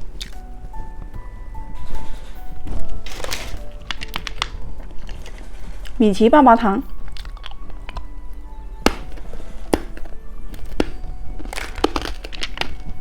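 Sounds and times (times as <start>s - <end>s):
lollipop crunching: 0.0s - 0.4s, 2.8s - 6.0s, 6.8s - 13.0s
background music: 0.0s - 13.0s.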